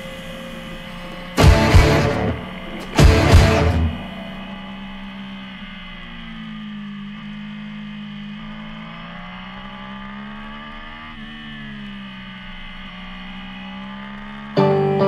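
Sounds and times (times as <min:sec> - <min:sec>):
loud guitar music: 0:00.0 - 0:05.1, 0:14.6 - 0:15.0
motorcycle engine running: 0:00.0 - 0:15.0.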